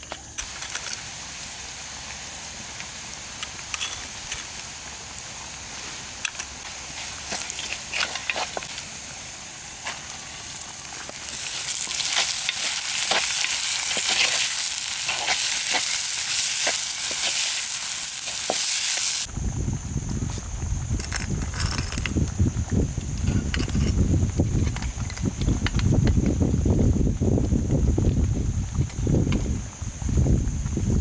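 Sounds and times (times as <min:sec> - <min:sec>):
food frying in a pan: 0:00.4 - 0:19.3.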